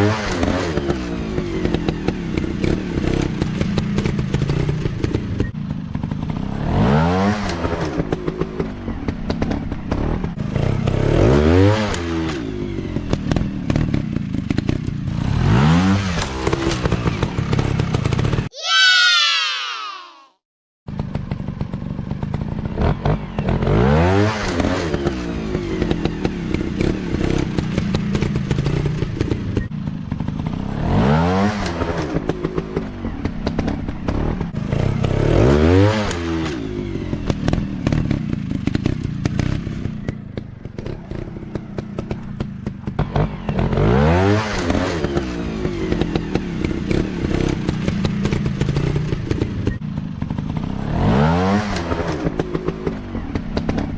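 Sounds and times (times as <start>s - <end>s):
dirt bike engine revving: 13.3s - 18.3s, 30.2s - 49.6s, 50.3s - 53.9s.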